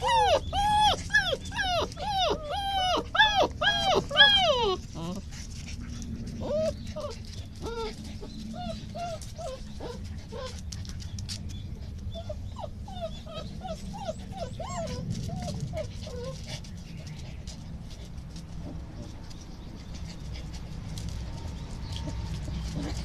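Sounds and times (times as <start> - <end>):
puppy whimpering: 0.0 - 5.3, 6.4 - 10.7, 11.5 - 16.7.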